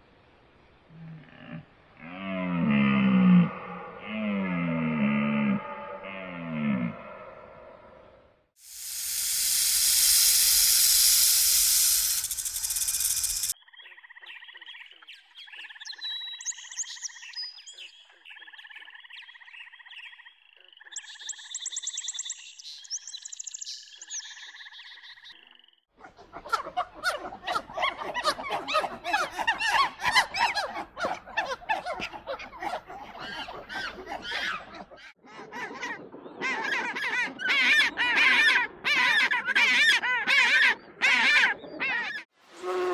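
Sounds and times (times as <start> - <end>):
animal hissing: 8.6 - 13.6
high chirps: 8.6 - 13.6
rapid chattering calls: 8.6 - 13.6
trilling animal calls: 26.0 - 42.3.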